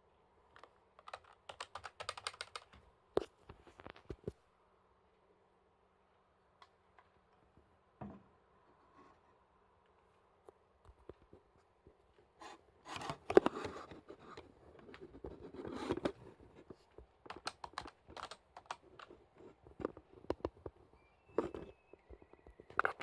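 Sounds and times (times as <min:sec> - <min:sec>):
keyboard typing clicks: 0:00.6 - 0:02.8, 0:17.3 - 0:19.1.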